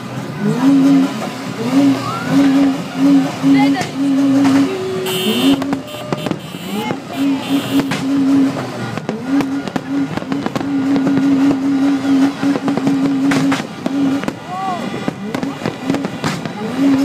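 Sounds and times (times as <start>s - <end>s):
fireworks bangs and crackling: 1.0s - 17.0s
low horn tone: 4.6s - 8.4s.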